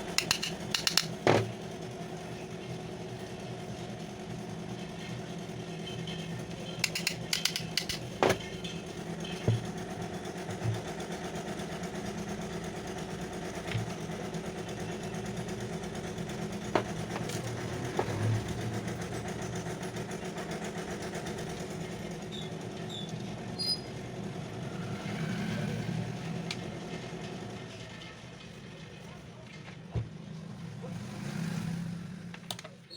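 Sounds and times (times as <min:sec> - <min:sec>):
sharp clicks and knocks: 0:00.0 - 0:01.5, 0:06.8 - 0:08.5.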